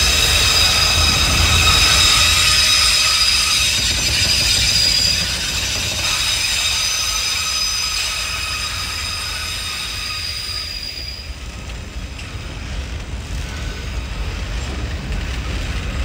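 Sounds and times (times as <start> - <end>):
low rumble of train: 0.0 - 16.0
train wheels squealing: 0.0 - 16.0.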